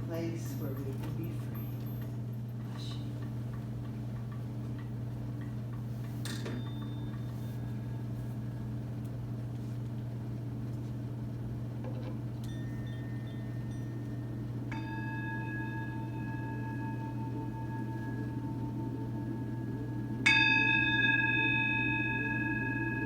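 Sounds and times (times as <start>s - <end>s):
faint high ringing tones: 0.1s - 3.2s, 6.2s - 9.0s, 12.4s - 23.0s.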